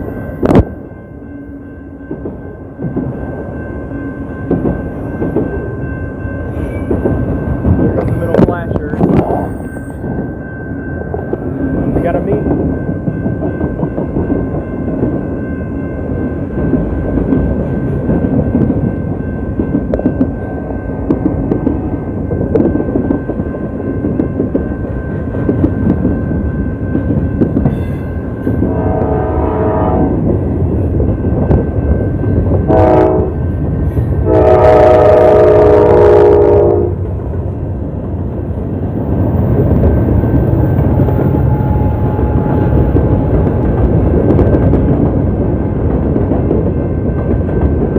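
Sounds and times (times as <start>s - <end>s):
freight train rumbling: 0.0s - 47.9s
locomotive air horn blasts: 28.7s - 30.2s, 32.7s - 33.4s, 34.2s - 37.0s.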